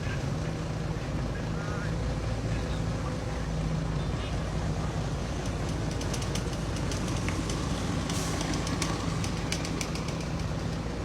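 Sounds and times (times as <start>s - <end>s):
sharp clicks and metallic knocks: 5.4s - 10.6s.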